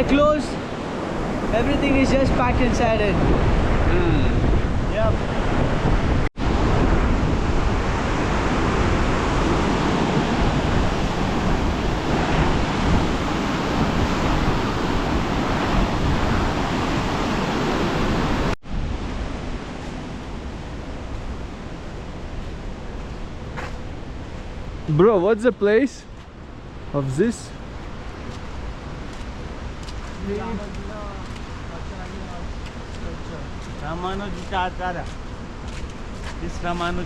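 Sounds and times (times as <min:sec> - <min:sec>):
fast-flowing water rushing: 0:06.4 - 0:18.6.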